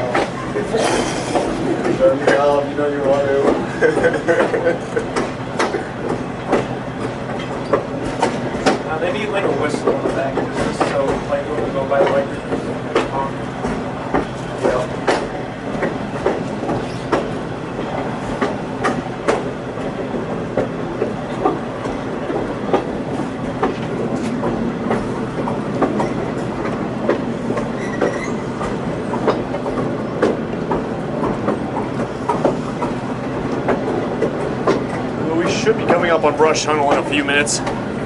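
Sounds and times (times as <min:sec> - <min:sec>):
wheels clicking over rail joints: 0:00.0 - 0:37.9
train rumble: 0:00.0 - 0:38.0
short high squeal: 0:27.8 - 0:28.5.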